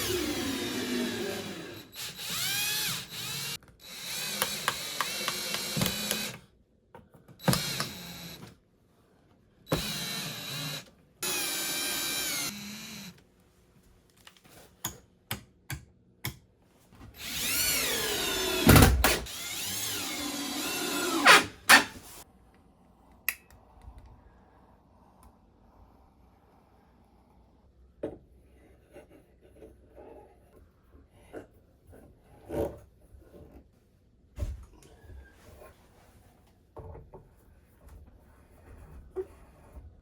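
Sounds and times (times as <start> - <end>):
power drill whining: 0.0 - 6.4, 7.4 - 8.5, 9.7 - 13.2, 17.2 - 22.0.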